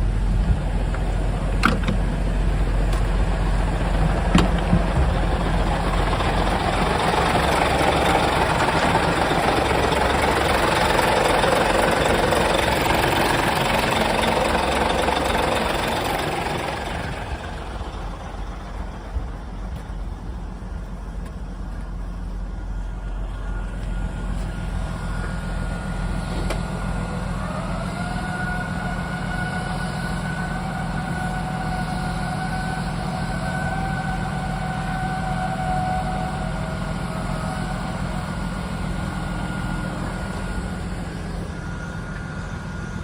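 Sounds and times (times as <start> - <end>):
high whine: 0.0 - 43.0
truck diesel engine idling: 0.0 - 43.0.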